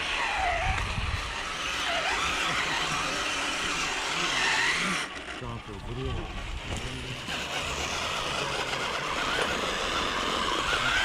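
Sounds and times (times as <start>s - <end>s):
electric motor and gearbox whine: 0.0s - 11.0s.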